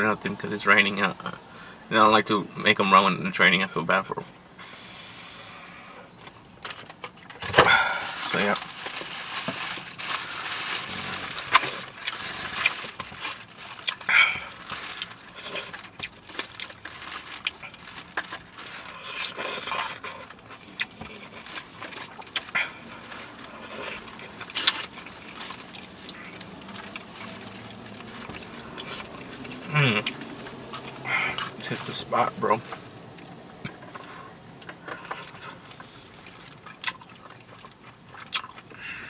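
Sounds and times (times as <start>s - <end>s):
wet chewing and mouth smacks: 11.3s - 31.6s, 32.6s - 39.0s.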